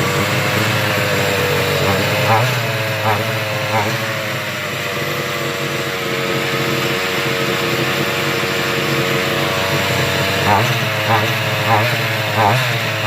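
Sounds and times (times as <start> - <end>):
two-stroke engine idling: 0.0 - 13.0.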